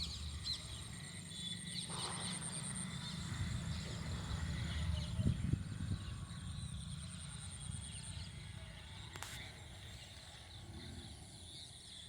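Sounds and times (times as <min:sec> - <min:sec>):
wind rumble on microphone: 0:03.3 - 0:07.0.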